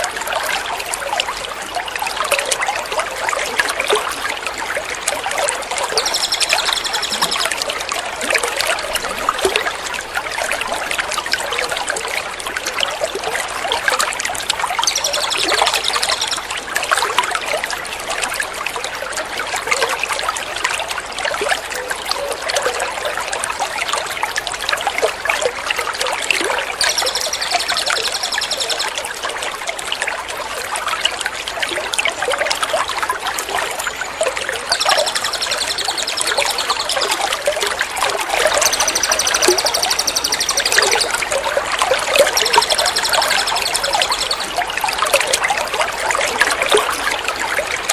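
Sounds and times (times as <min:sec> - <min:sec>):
trickling water: 0:00.0 - 0:47.9
rapid high bird notes: 0:26.8 - 0:29.0, 0:34.7 - 0:37.3, 0:38.4 - 0:41.2.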